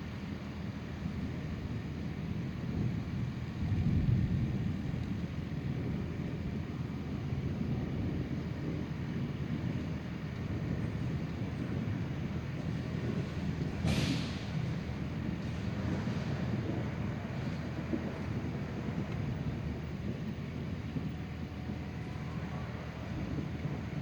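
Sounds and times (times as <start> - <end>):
low rumble of thunder: 0.0 - 24.0
wind: 0.0 - 24.0
sharp thunder crack: 12.9 - 17.0.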